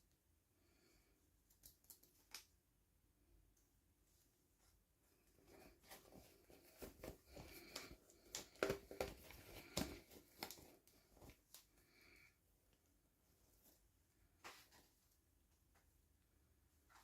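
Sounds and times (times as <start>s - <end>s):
clicks and rustles of packaging: 6.5s - 11.7s.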